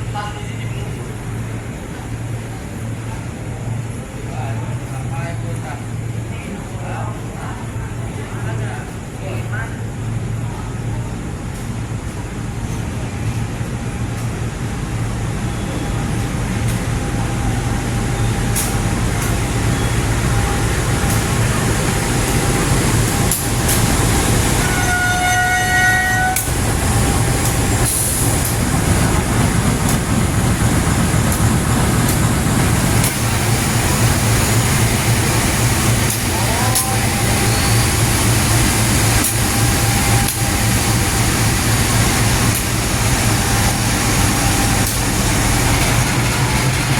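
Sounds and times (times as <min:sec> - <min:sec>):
train rumbling past: 0:00.0 - 0:46.9
train horn: 0:24.6 - 0:26.5.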